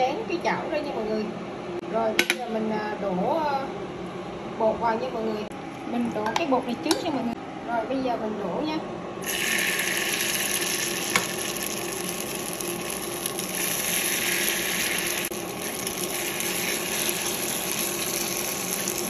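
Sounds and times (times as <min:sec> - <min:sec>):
batter sizzling in hot oil: 0:09.2 - 0:19.0.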